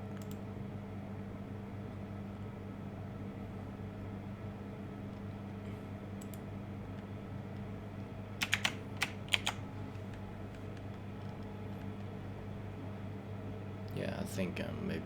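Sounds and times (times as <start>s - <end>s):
steady low hum: 0.0s - 15.0s
keyboard keys clicking: 8.4s - 12.1s.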